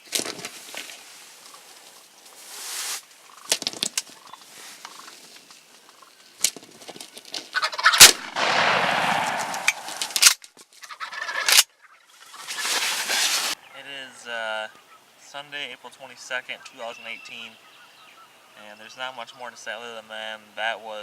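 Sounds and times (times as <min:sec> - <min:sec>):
turkeys gobbling: 0:07.5 - 0:08.4, 0:10.9 - 0:13.0
loud sharp crack: 0:07.8 - 0:10.4.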